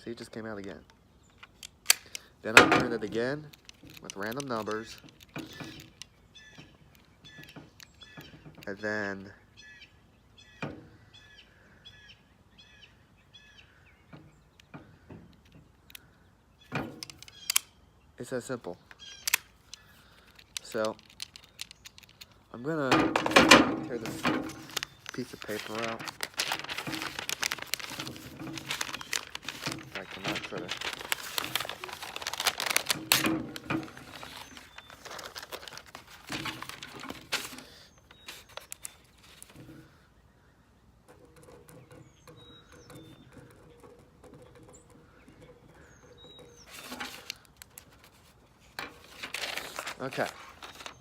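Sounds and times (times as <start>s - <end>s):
bird chirping: 0.0s - 22.9s, 23.8s - 51.0s
faint handling clicks: 0.6s - 8.8s, 18.8s - 39.8s
paper tearing and crinkling: 23.2s - 39.6s, 46.7s - 51.0s.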